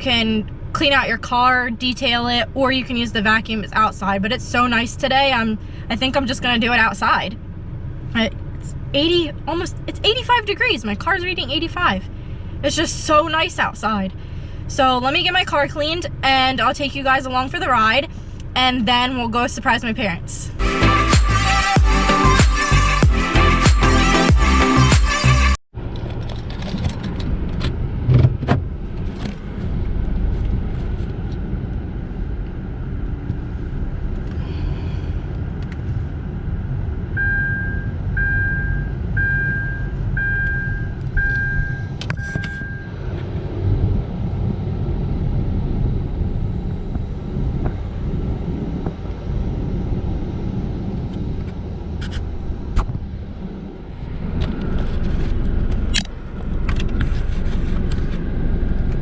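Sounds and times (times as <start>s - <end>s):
car engine running: 20.6s - 25.6s
short beeps: 37.2s - 43.0s.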